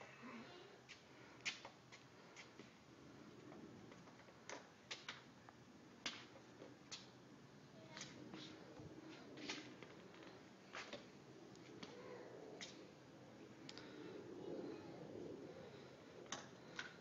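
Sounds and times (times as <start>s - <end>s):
faint clicks and ticks: 13.6s - 13.9s.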